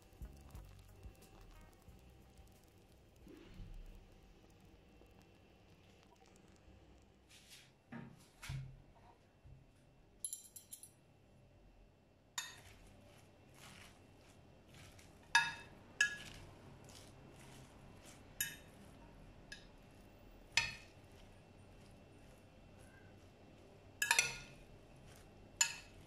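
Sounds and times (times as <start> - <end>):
dishes and cutlery clinking: 15.4 - 16.4, 24.0 - 26.0.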